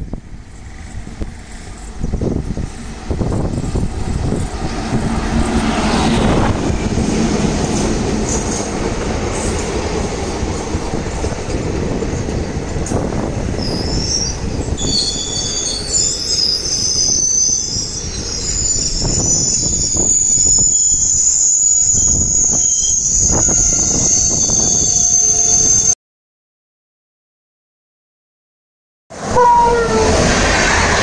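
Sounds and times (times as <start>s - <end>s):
train rushing past on rails: 0.0s - 26.0s, 29.1s - 31.0s
high-pitched wheel squeal: 13.6s - 26.0s.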